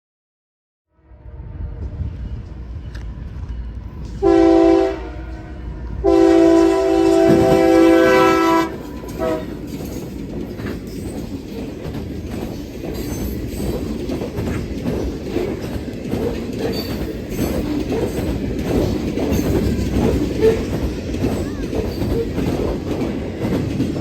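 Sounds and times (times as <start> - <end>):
train rumbling past: 0.9 - 24.0
locomotive air horn blast: 4.2 - 9.6
wheels clacking over rail joints: 6.1 - 24.0.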